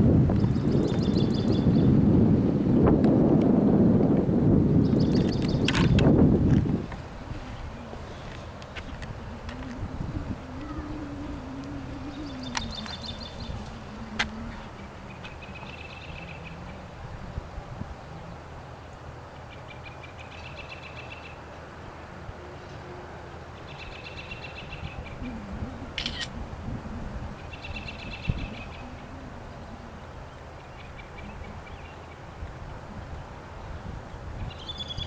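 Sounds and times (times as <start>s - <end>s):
steady low rumble: 0.0s - 19.9s, 21.4s - 34.5s
songbird trilling: 4.8s - 6.2s, 7.1s - 16.9s, 23.6s - 26.4s, 27.4s - 32.2s, 34.4s - 35.0s.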